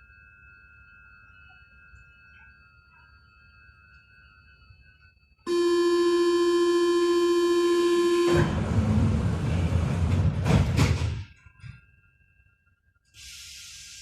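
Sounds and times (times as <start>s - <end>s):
train door warning buzzer: 5.5s - 9.4s.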